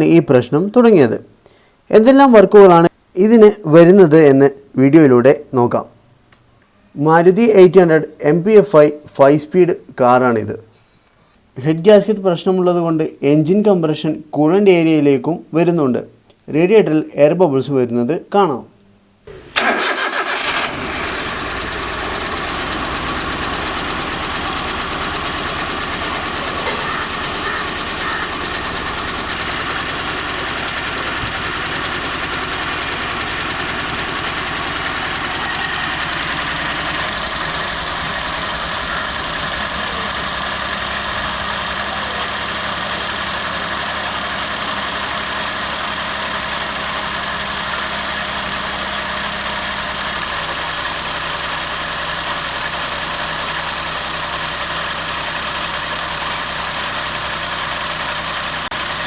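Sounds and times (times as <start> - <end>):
car engine idling: 19.3 - 59.0.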